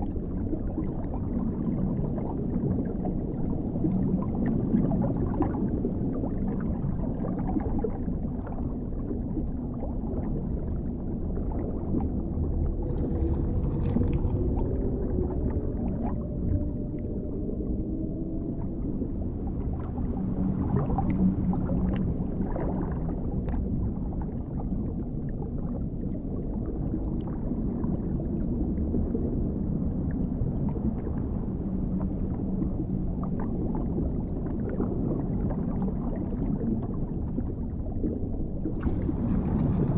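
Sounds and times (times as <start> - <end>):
faint bubbling ticks: 0.0 - 17.2
low wavering moaning tone: 0.0 - 39.9
muffled underwater rumble: 0.0 - 39.9.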